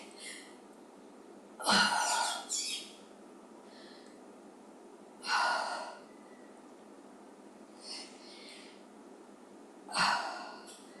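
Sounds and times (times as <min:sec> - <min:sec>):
woman breathing hard: 0:03.6 - 0:04.2, 0:07.8 - 0:08.9, 0:09.9 - 0:10.8.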